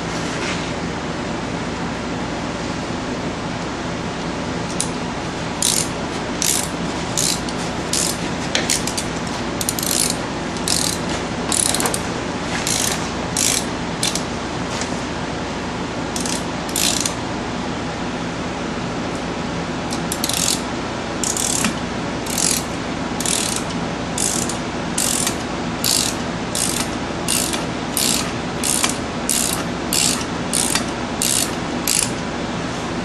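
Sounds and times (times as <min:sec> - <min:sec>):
steady hum: 0:00.0 - 0:33.0
hand ratchet clicking: 0:05.6 - 0:12.0, 0:12.6 - 0:14.3, 0:16.2 - 0:17.2, 0:19.9 - 0:32.2.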